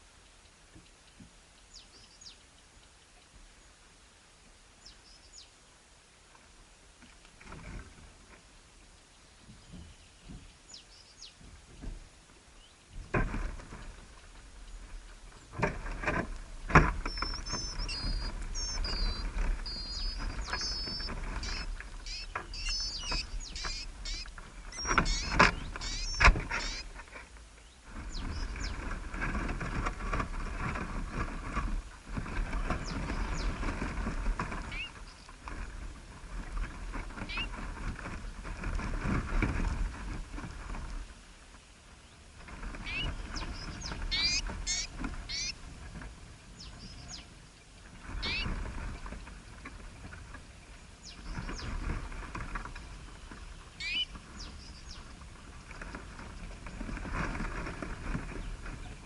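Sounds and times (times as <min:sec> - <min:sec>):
small bird chirping: 0:01.1 - 0:03.2, 0:17.0 - 0:26.9, 0:34.7 - 0:35.3, 0:37.3 - 0:37.5, 0:42.8 - 0:45.6, 0:48.2 - 0:48.5, 0:53.7 - 0:55.1.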